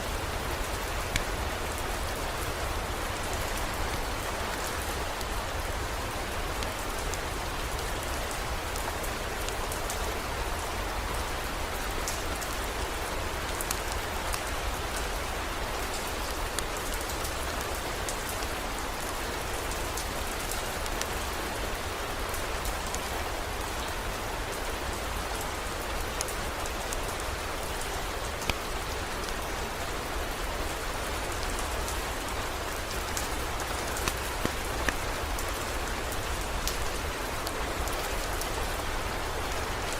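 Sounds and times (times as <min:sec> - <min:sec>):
heavy rain: 0:00.0 - 0:39.9
raindrop ticks: 0:31.3 - 0:38.9.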